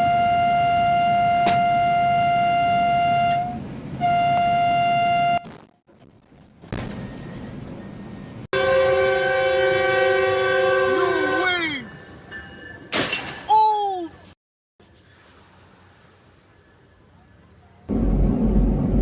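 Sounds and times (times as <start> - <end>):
train horn blowing: 0.0 - 5.4, 8.6 - 11.7
low rumble: 17.9 - 19.0.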